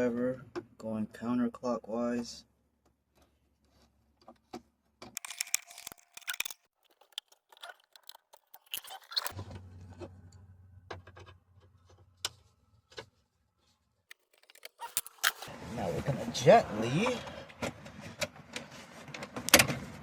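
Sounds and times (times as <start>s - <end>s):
screwdriver scraping small parts: 5.2s - 9.4s, 14.1s - 15.5s.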